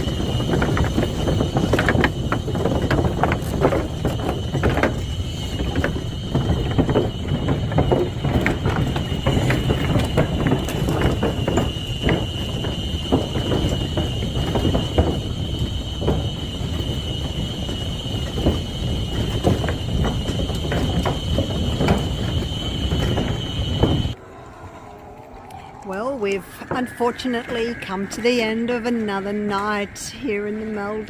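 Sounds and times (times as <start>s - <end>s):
buggy rattling and knocking: 0.0s - 24.2s
low rumble: 19.7s - 29.9s.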